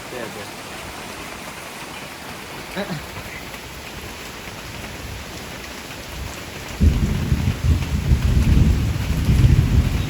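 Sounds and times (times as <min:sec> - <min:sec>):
heavy rain falling: 0:00.0 - 0:10.0
thunder rumbling: 0:06.0 - 0:10.0.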